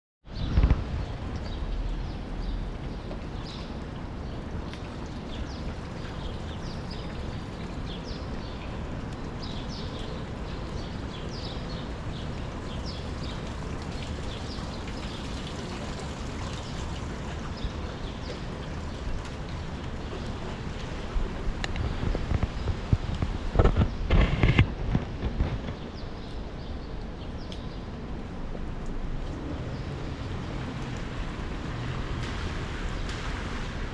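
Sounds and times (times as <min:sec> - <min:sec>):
city street rumble and hiss: 0:00.3 - 0:33.9
small birds chirping: 0:01.5 - 0:19.1.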